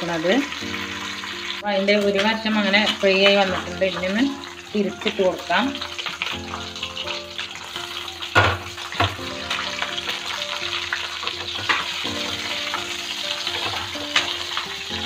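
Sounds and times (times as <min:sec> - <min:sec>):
chicken sizzling in oil: 0:00.0 - 0:15.0
metal spoons scraping a pan: 0:10.0 - 0:14.9.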